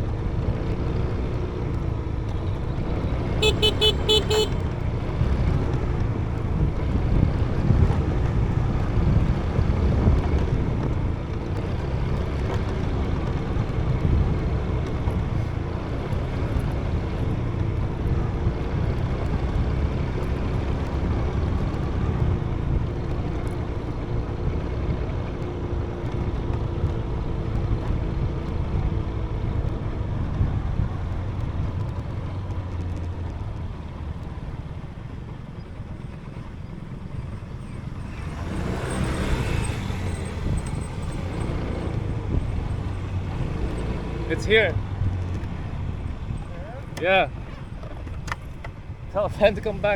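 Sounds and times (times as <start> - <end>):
motorbike engine running: 0.0 - 49.9
wind buffeting microphone: 26.1 - 49.9.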